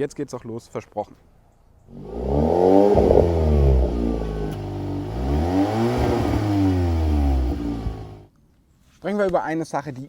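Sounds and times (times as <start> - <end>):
muffled car engine revving: 1.9 - 8.3.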